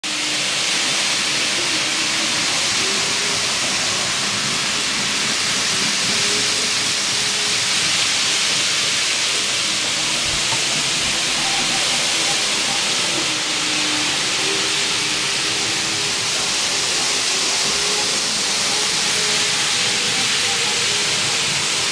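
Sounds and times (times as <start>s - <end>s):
train rushing hiss: 0.0s - 21.9s.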